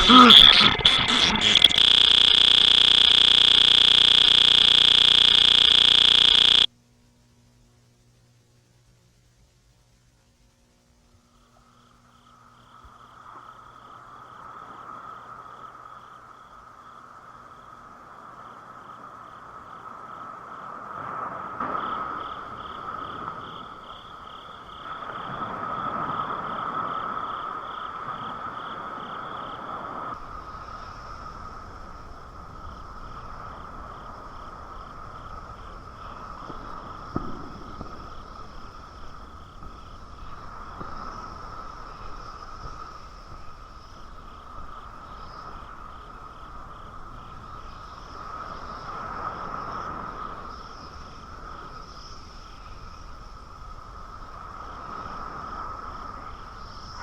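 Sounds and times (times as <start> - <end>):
harsh pulsing electronic buzzing: 0.0 - 6.7
insect or frog chirps: 0.0 - 6.7, 11.3 - 57.0
steady high hum: 0.0 - 14.1.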